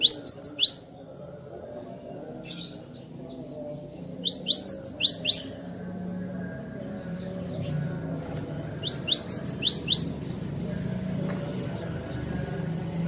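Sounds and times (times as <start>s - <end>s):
bird singing high notes: 0.0s - 0.9s, 4.2s - 5.6s, 8.8s - 10.2s.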